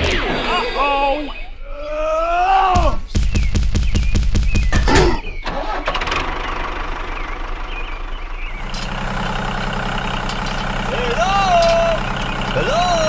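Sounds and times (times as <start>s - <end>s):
vehicle engine starting and idling: 4.8s - 13.0s.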